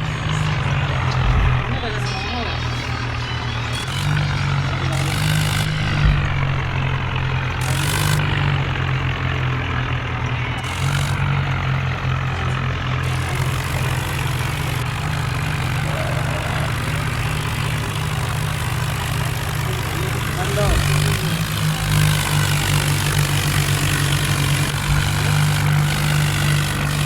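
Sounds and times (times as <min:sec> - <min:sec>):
tractor diesel engine running: 0:00.0 - 0:27.0
short low thump: 0:01.1 - 0:01.8, 0:05.6 - 0:08.2.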